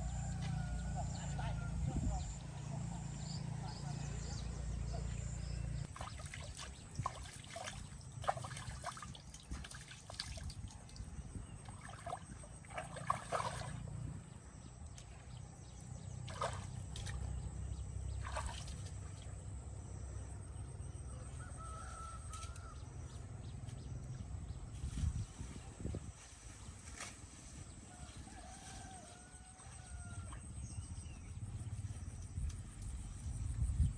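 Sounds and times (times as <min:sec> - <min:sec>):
small splashes and clicks: 0:05.9 - 0:13.8, 0:16.2 - 0:17.3, 0:18.2 - 0:19.4
water trickling: 0:05.9 - 0:14.0
steady low rumble: 0:30.4 - 0:33.9.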